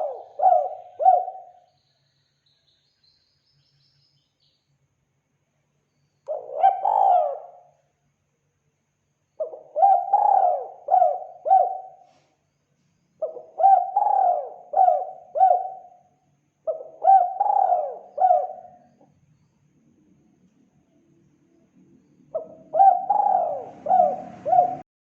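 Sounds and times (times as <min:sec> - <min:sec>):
dove cooing: 0:00.0 - 0:01.6, 0:06.3 - 0:07.6, 0:09.4 - 0:12.0, 0:13.2 - 0:15.9, 0:16.7 - 0:19.0, 0:22.3 - 0:24.9.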